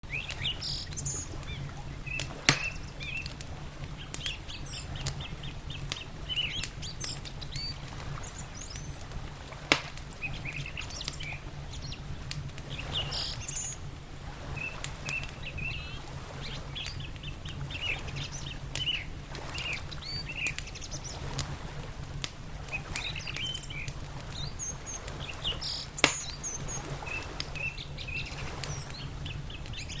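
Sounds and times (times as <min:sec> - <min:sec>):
small birds chirping: 0:00.0 - 0:21.4, 0:22.6 - 0:30.0
wood fire crackling: 0:00.0 - 0:30.0
loud pops from fire: 0:02.1 - 0:11.3, 0:22.2 - 0:27.6.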